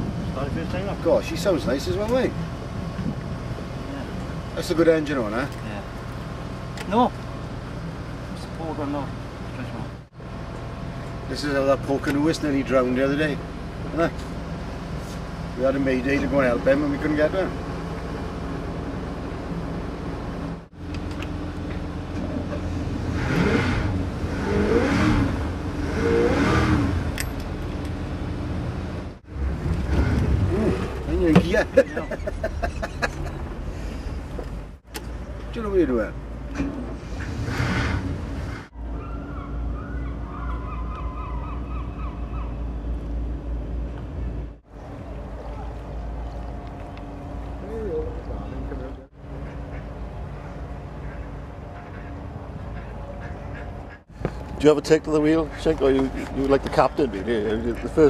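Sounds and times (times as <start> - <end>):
boat engine rumble: 0.0 - 23.2, 26.9 - 58.0
wind: 0.0 - 58.0
engine revving: 22.2 - 31.8, 36.5 - 39.0.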